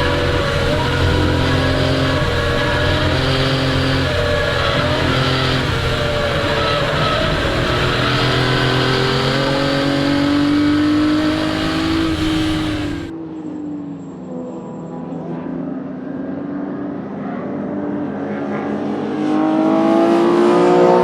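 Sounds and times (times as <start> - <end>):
car engine accelerating: 0.0 - 13.1.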